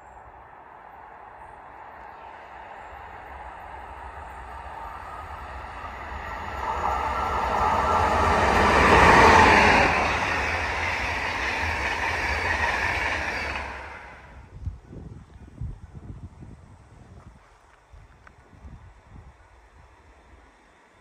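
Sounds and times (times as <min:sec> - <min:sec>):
train passing: 0:00.0 - 0:14.6.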